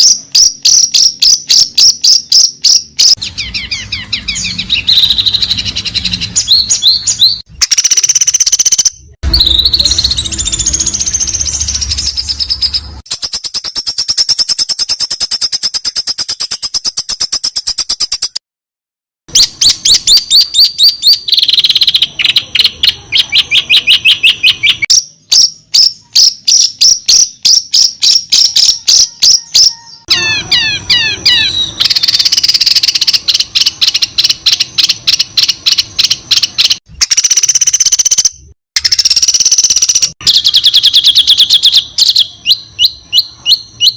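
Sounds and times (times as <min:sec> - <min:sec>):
songbird chip notes and trills: 0:19.3 - 0:43.9.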